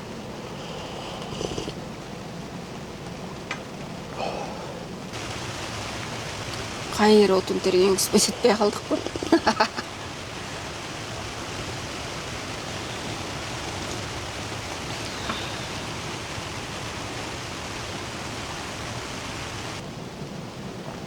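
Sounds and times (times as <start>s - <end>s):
heavy rain: 0.0s - 21.0s
waterfall rushing: 4.1s - 19.8s.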